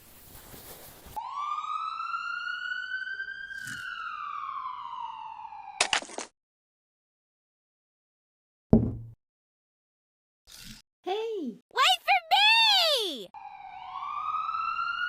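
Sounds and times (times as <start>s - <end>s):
siren-like sweeping tone: 1.2s - 5.8s, 13.4s - 15.0s.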